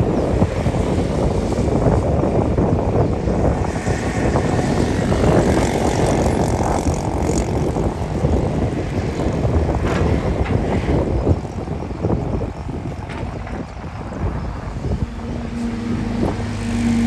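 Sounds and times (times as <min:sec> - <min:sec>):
heavy diesel engine under load: 0:12.0 - 0:17.0.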